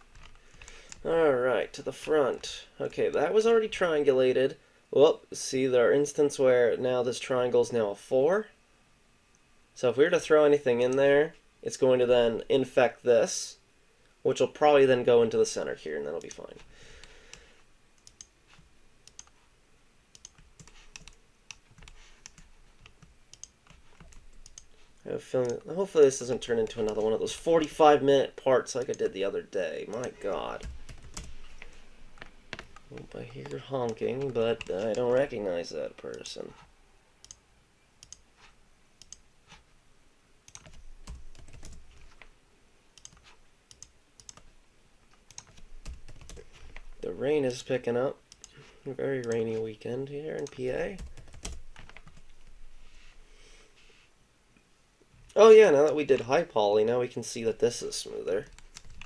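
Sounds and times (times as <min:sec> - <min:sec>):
computer keyboard and mouse clicks: 0:00.1 - 0:01.1, 0:18.0 - 0:19.4, 0:20.1 - 0:24.7, 0:29.9 - 0:35.3, 0:38.0 - 0:38.3, 0:39.0 - 0:39.2, 0:40.5 - 0:42.3, 0:43.0 - 0:44.5, 0:45.1 - 0:46.9, 0:50.4 - 0:52.3, 0:58.4 - 0:59.0
mouse clicks: 0:39.0 - 0:39.2.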